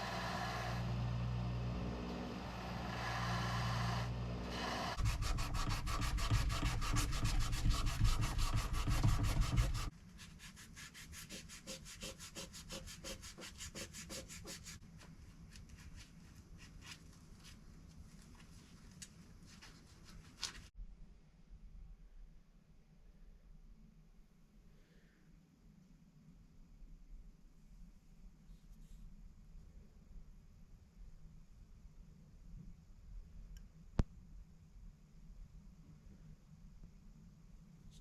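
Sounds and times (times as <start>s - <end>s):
machine hum: 0.0s - 9.9s
rubbing strokes on a knife: 5.0s - 14.8s.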